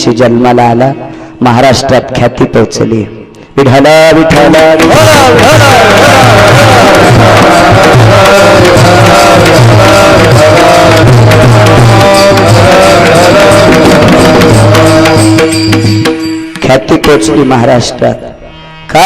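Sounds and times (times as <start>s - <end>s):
tabla drumming: 3.8s - 18.0s.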